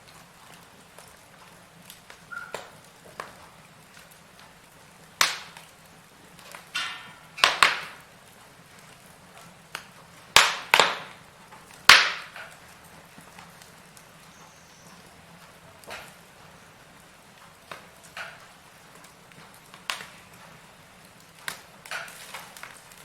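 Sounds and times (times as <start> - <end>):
faint hiss of fire: 0.0 - 23.0
firewood crackling and popping: 0.0 - 23.0.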